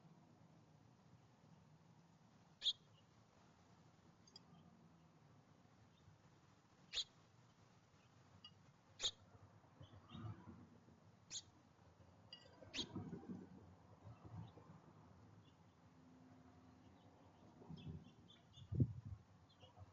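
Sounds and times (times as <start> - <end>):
faint bird chirps: 2.6 - 3.1, 6.9 - 7.2, 8.0 - 10.4, 11.3 - 11.6, 12.3 - 13.0, 16.7 - 19.9.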